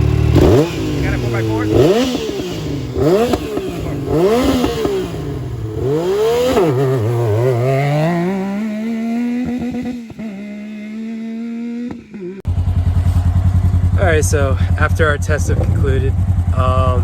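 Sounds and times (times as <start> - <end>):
engine revving: 0.0 - 17.0.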